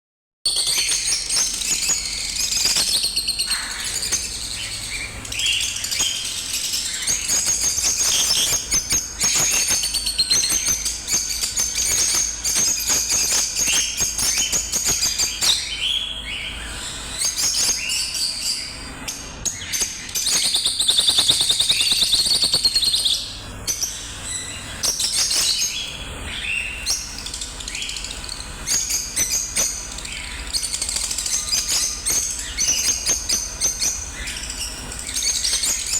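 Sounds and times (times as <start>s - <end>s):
lovebirds chirping and twittering: 0.5s - 35.9s.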